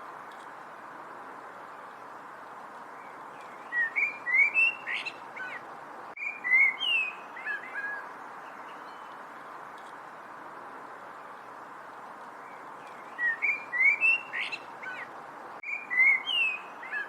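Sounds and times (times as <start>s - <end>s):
steady hiss: 0.0s - 6.2s
songbird singing whistled notes: 3.0s - 5.6s, 6.2s - 9.2s, 12.4s - 17.0s.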